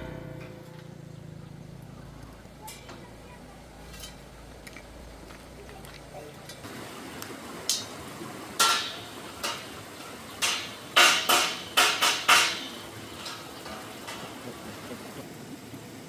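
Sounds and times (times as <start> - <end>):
metallic clanks and knocks: 0.0 - 6.7, 8.6 - 14.5
faint metal ticks: 0.0 - 8.0.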